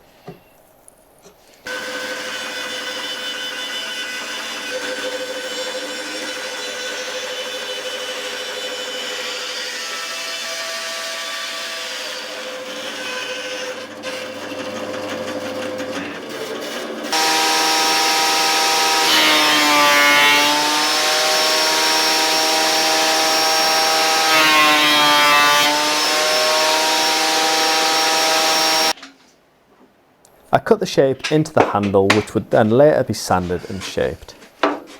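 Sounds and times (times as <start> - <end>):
power tool motor whining: 16.0 - 29.0.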